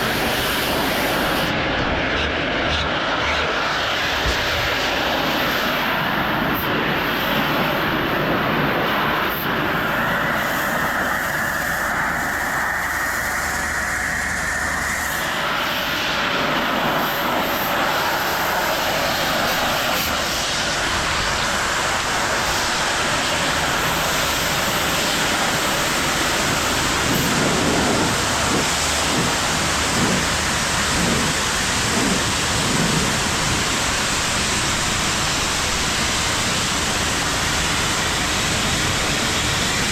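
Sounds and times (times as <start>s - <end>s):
pressure washer spray hissing: 0.0s - 1.5s, 16.8s - 39.7s
pressure washer motor running: 21.1s - 39.9s.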